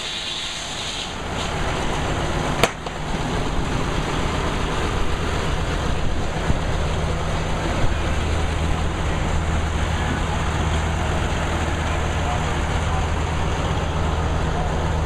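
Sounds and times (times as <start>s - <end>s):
sawmill machinery drone: 0.0s - 15.0s.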